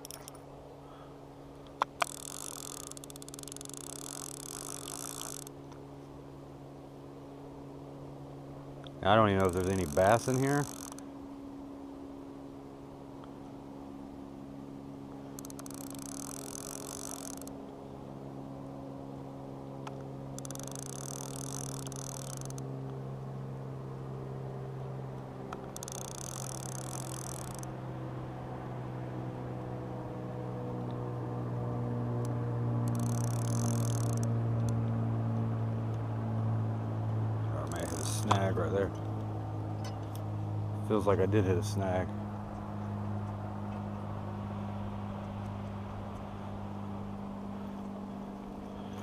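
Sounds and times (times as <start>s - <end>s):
fishing reel whirring: 0.0s - 0.4s, 1.9s - 5.6s, 9.2s - 11.2s, 15.3s - 17.6s, 20.3s - 22.7s, 25.6s - 27.8s, 32.2s - 34.8s, 37.5s - 38.6s
steady low hum: 0.0s - 49.0s.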